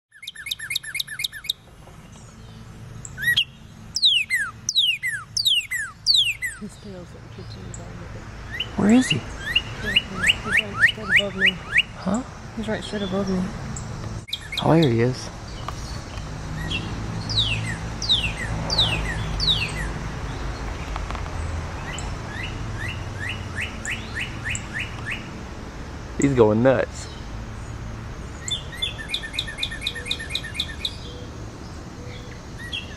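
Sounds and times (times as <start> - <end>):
bird chips: 0.1 - 6.6, 13.8 - 25.3.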